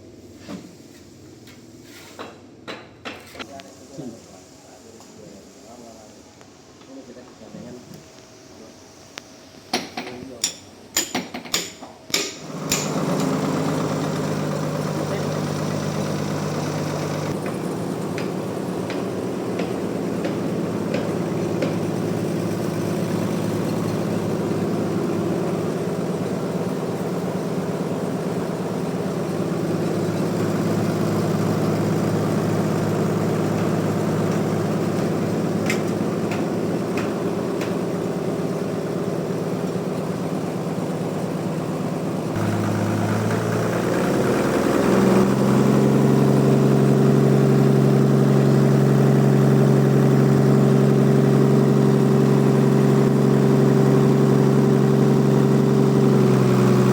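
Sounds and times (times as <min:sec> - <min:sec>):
sawmill machinery humming: 0:12.2 - 0:56.9.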